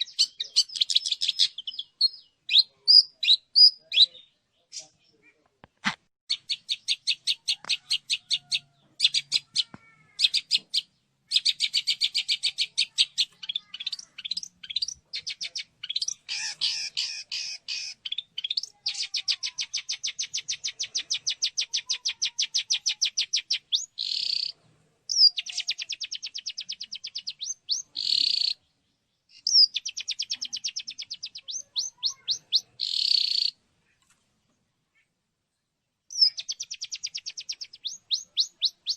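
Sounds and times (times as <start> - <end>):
shrike chattering song: 6.3 - 28.6, 29.4 - 33.6, 36.1 - 38.9.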